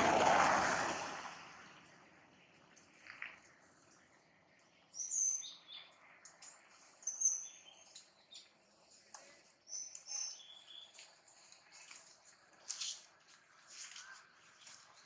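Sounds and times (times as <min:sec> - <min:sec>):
faint outdoor hiss: 0:01.0 - 0:15.0
wild birds chirping: 0:01.4 - 0:12.9.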